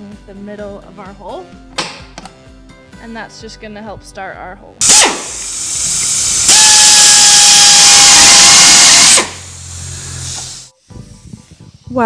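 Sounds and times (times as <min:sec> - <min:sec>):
electric drill whining: 0:04.8 - 0:10.7.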